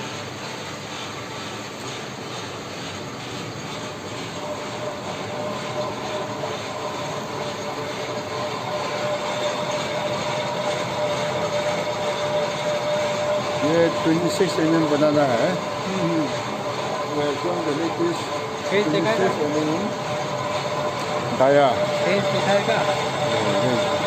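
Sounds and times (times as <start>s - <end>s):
lathe cutting whine: 0.0s - 24.0s.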